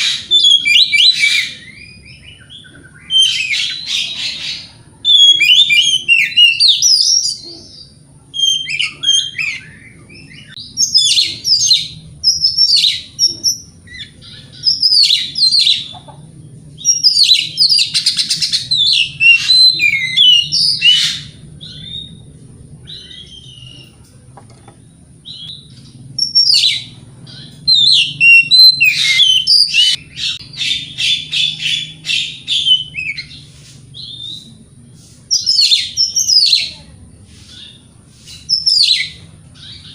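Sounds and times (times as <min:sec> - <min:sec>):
songbird whistling and chattering: 0:00.0 - 0:16.2, 0:16.8 - 0:22.2, 0:25.2 - 0:34.6, 0:35.3 - 0:36.7, 0:37.4 - 0:39.9
low hum: 0:09.6 - 0:35.3.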